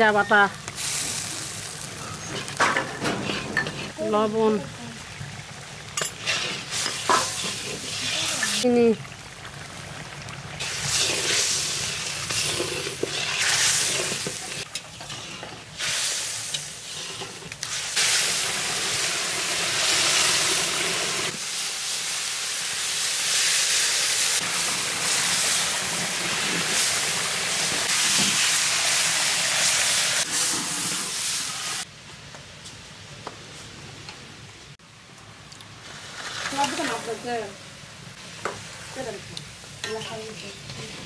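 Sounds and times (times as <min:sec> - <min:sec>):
spice paste sizzling in oil: 0:00.0 - 0:31.9, 0:35.7 - 0:41.0
metal spatula scraping wok: 0:02.0 - 0:04.0, 0:10.8 - 0:15.8.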